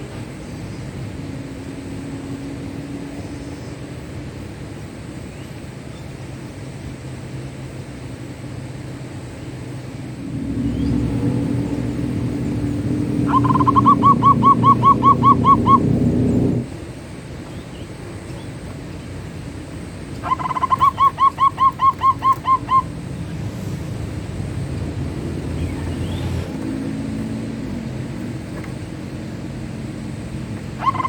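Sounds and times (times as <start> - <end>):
low engine-like hum: 0.0 - 31.0
dove cooing rapidly: 10.2 - 16.7, 20.2 - 28.9, 30.6 - 31.0.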